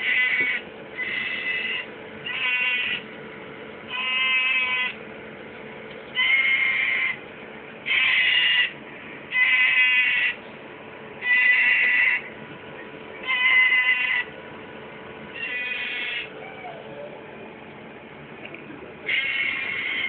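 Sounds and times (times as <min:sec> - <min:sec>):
loud bird calls: 0:07.9 - 0:08.8, 0:15.4 - 0:17.1, 0:19.1 - 0:20.0.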